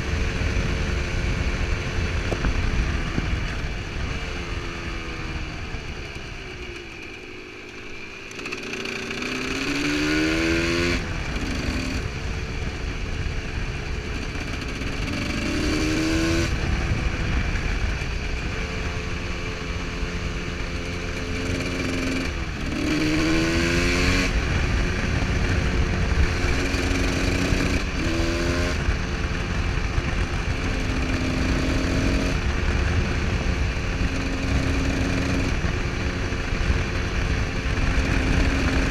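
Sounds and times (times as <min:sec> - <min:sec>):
two-stroke motorcycle engine revving: 0:00.0 - 0:38.9.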